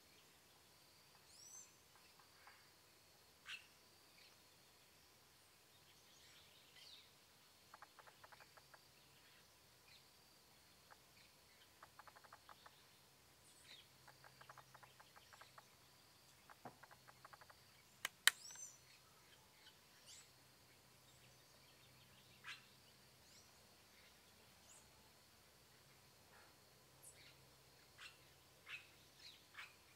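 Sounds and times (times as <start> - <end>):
birds chirping: 10.9 - 24.9
sharp click: 18.0 - 18.7.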